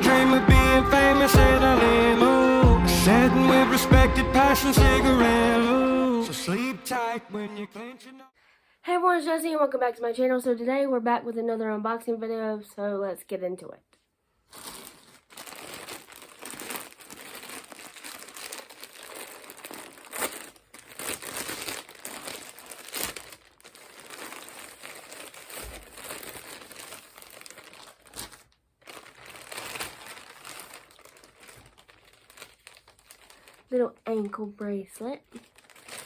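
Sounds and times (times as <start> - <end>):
packaging crinkling and rustling: 14.4 - 36.0.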